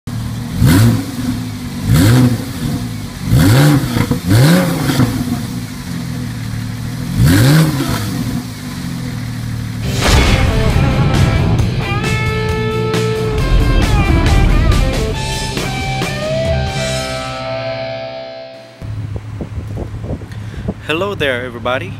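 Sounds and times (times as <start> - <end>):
car engine idling and revving: 0.0 - 17.8, 18.8 - 21.9
louder steady sound: 9.8 - 18.8.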